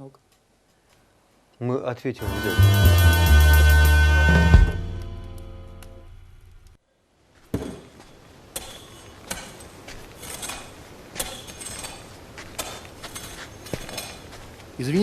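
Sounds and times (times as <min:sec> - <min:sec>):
music: 0:02.2 - 0:06.4.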